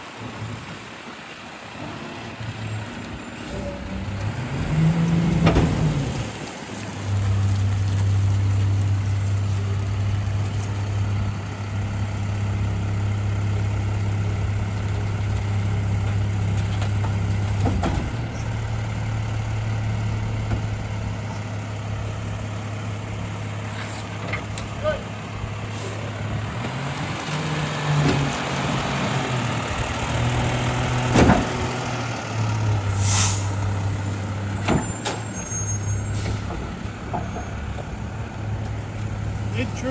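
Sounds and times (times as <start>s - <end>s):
garbage truck engine revving: 0.2s - 39.9s.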